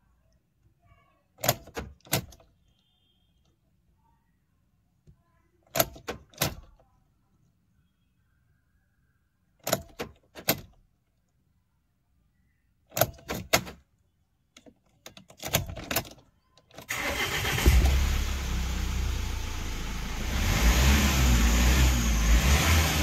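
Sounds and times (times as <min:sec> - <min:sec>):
diesel engine cranking and running: 0:16.9 - 0:23.0.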